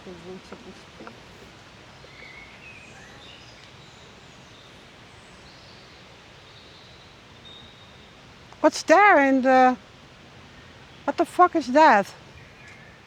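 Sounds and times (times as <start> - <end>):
outdoor background noise: 0.0 - 13.0
faint bird chirps: 1.8 - 8.3, 12.2 - 13.0.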